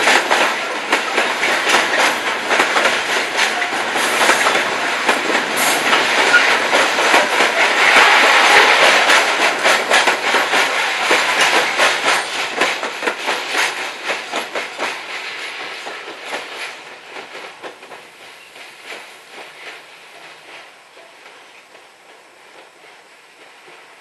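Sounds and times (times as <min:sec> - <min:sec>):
train wheels clattering over rail joints: 0:00.0 - 0:24.0.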